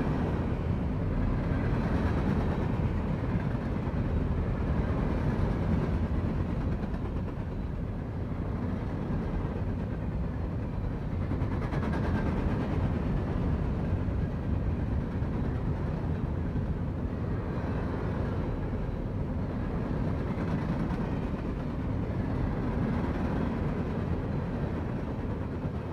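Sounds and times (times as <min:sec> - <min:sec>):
freight train wheels rumbling on rails: 0:00.0 - 0:25.9.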